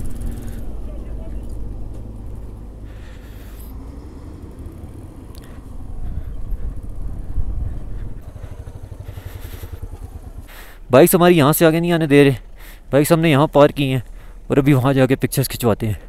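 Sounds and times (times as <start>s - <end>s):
motorcycle engine at low revs: 0.0s - 14.5s.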